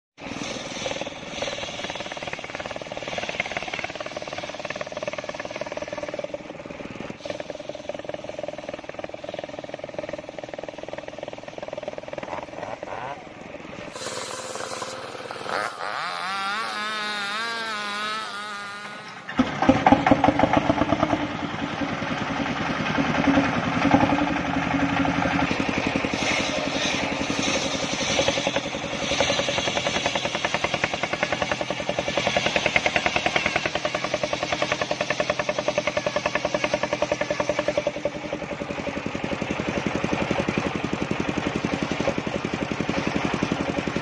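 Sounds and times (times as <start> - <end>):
sawmill engine running hard: 0.2 - 44.0
warbling tone: 0.4 - 15.9.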